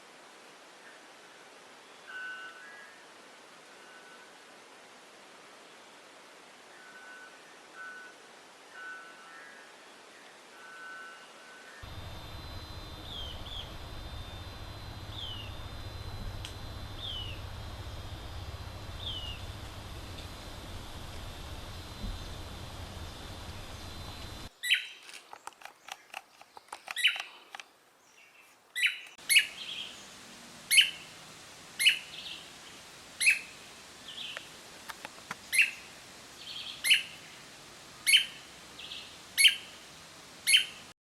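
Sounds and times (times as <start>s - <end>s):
steady background hiss: 0.0s - 41.0s
bird call sweeping down: 11.8s - 24.8s, 28.8s - 30.0s, 30.7s - 31.1s, 31.8s - 32.4s, 33.2s - 34.4s, 35.5s - 35.9s, 36.5s - 37.2s.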